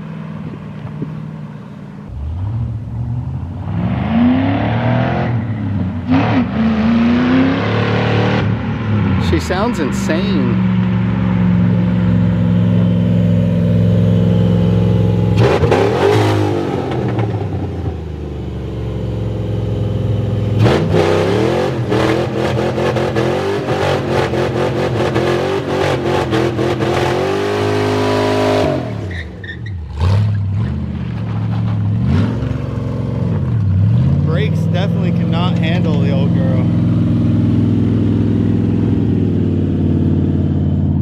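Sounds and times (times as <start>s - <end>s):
car engine revving hard: 2.1s - 10.6s, 14.3s - 18.0s, 20.4s - 29.2s, 29.8s - 30.9s.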